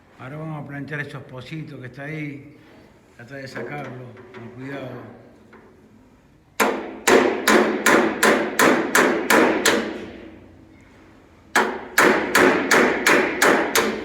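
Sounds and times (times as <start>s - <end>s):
hammer striking sheet steel: 6.6s - 10.4s, 11.5s - 14.0s.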